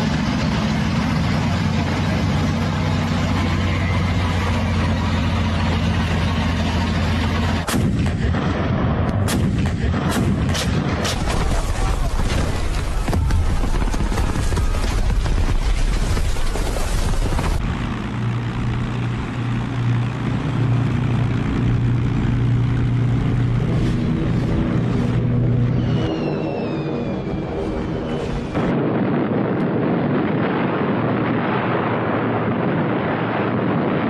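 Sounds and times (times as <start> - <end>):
steady low drone: 0.0 - 34.0
gunshots: 7.6 - 17.6.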